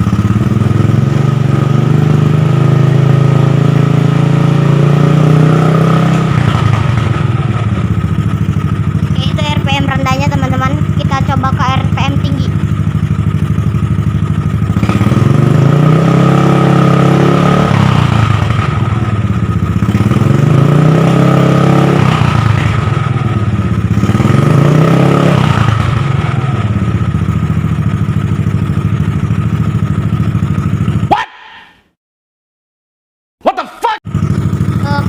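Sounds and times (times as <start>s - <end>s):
scooter engine revving: 0.0s - 31.6s, 34.0s - 35.0s.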